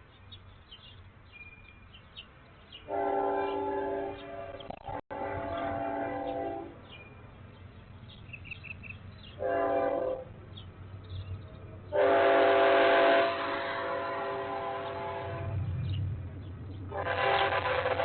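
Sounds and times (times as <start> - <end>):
train horn blasts: 2.9 - 6.8, 9.4 - 10.3, 11.9 - 15.8, 16.9 - 18.0
faint small birds chirping: 5.5 - 9.5.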